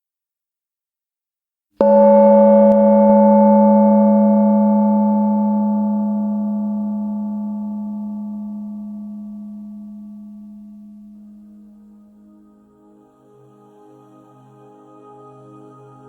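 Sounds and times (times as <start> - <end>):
gong ringing: 1.8 - 11.9.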